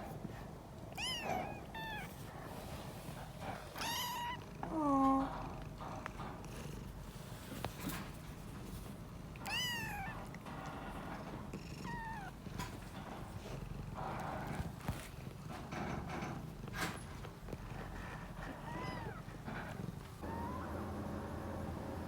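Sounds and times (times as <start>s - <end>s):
small rustles: 0.0s - 20.2s
kittens mewing: 1.0s - 2.2s, 3.5s - 5.3s, 18.5s - 20.6s
low steady purr: 1.2s - 22.0s.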